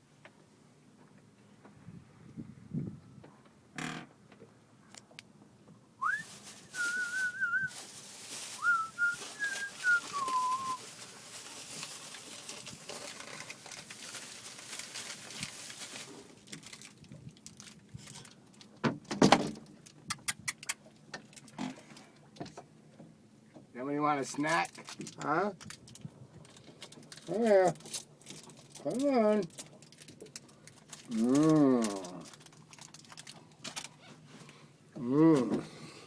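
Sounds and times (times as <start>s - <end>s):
person whistling a wavering tune: 6.0s - 7.7s, 8.6s - 10.8s.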